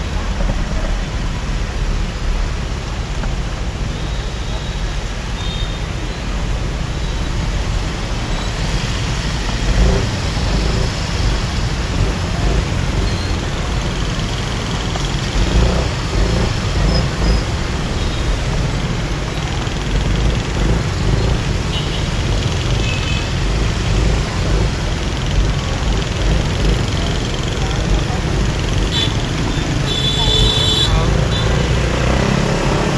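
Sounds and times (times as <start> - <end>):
traffic noise: 0.0 - 32.9
motorbike engine: 8.0 - 32.9.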